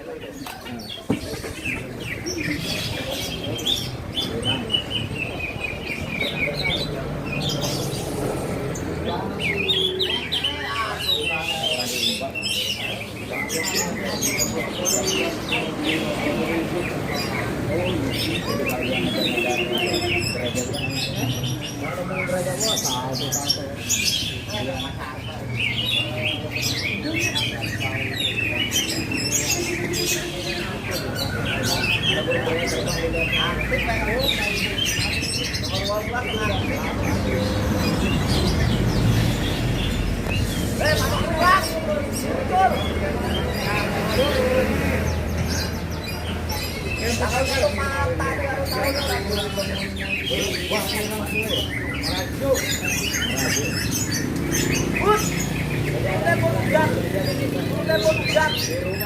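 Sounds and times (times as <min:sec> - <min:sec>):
murmur of voices: 0:00.0 - 0:59.0
scattered bird calls: 0:00.0 - 0:59.0.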